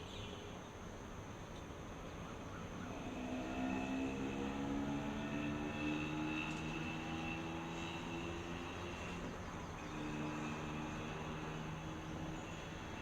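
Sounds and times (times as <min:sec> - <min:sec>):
distant engine drone: 0:02.1 - 0:13.0.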